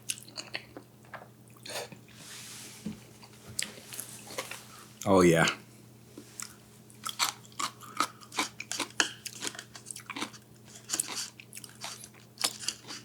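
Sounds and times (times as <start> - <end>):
person chewing crunchy food: 0.1 - 0.8, 6.4 - 13.0.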